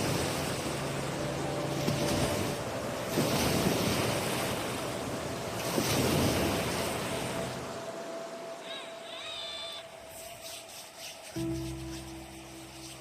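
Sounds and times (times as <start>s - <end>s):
waves breaking onto shore: 0.0s - 13.0s.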